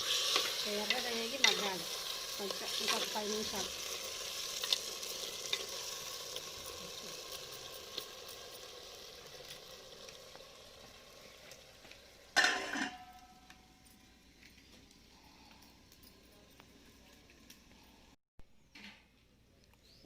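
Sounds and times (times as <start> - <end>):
chicken frying in a pan: 0.0 - 13.3.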